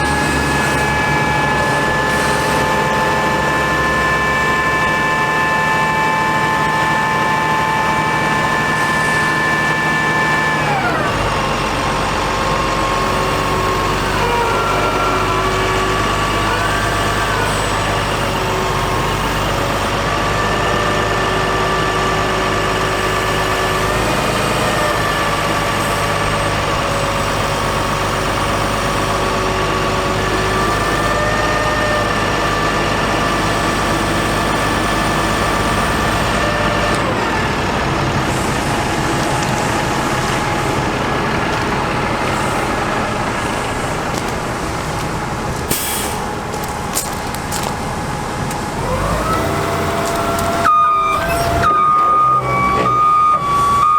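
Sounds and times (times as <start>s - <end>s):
diesel engine whining: 0.0s - 53.9s.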